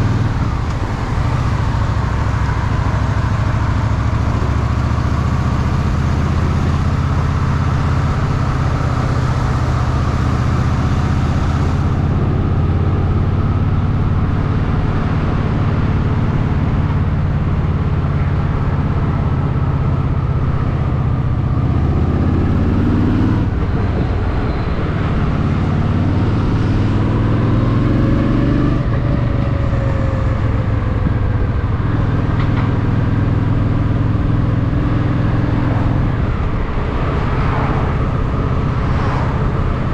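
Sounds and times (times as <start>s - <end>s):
motorcycle engine running: 23.4s - 39.9s.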